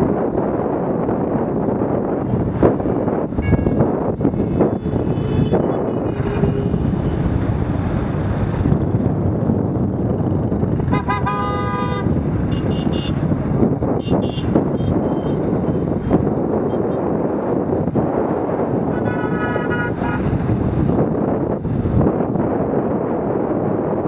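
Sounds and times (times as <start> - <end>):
wind rush: 0.0 - 24.0
vehicle horn toots: 5.0 - 6.8, 10.9 - 13.2, 14.0 - 15.4, 18.9 - 20.3.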